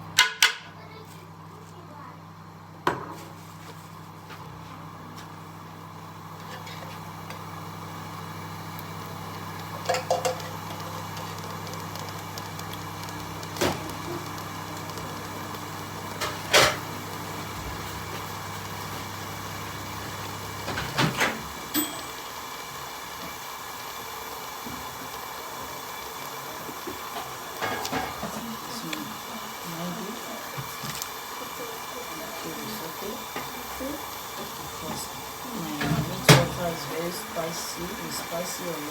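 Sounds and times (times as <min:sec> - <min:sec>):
stew hissing in a pot: 0:22.4 - 0:38.9.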